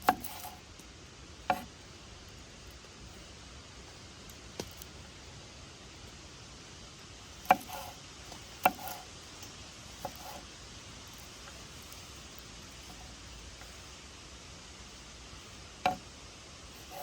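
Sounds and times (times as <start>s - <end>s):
knife chopping on cutting board: 0.0s - 0.6s, 7.4s - 7.9s
faint steady hiss: 0.0s - 17.0s.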